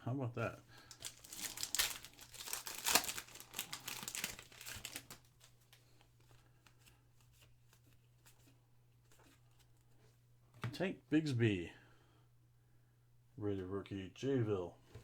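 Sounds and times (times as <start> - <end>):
foil wrapper crinkling: 0.8 - 5.8.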